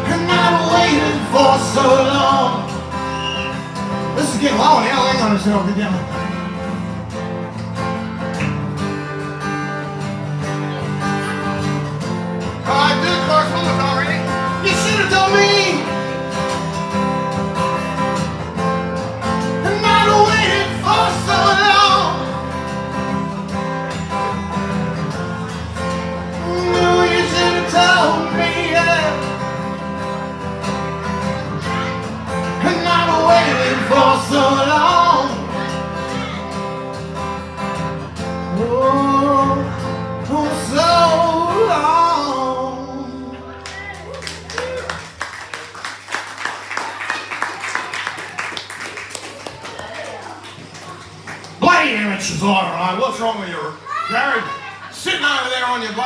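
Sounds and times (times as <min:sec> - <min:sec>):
person singing: 0:00.0 - 0:02.8, 0:12.7 - 0:16.0, 0:19.6 - 0:22.5, 0:26.3 - 0:29.4, 0:32.5 - 0:36.4
acoustic guitar strumming: 0:00.0 - 0:44.5.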